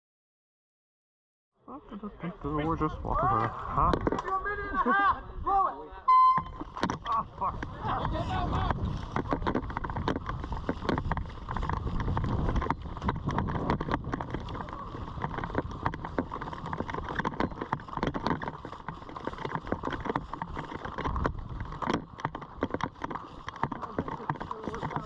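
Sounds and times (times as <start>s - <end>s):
wind buffeting microphone: 2.6s - 5.7s, 6.4s - 25.0s
footsteps: 6.4s - 25.0s
irregular clicks: 6.4s - 25.0s
gear rustling and knocking: 6.5s - 25.0s.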